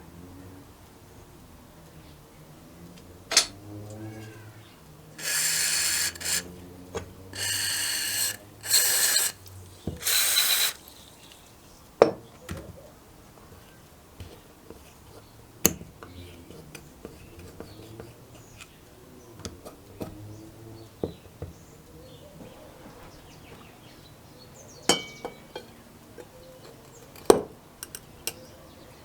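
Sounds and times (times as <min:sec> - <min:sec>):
clicks and knocks of tools: 0:02.9 - 0:04.0, 0:25.0 - 0:28.4
pressurised air hissing: 0:05.2 - 0:06.5, 0:07.3 - 0:11.5.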